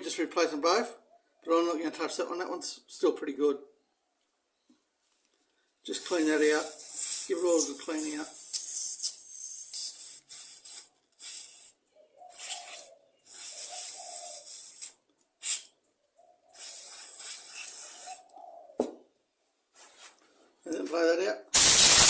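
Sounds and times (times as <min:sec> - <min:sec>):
aerosol spray hissing: 0:06.1 - 0:15.6, 0:16.6 - 0:18.2, 0:21.6 - 0:22.0.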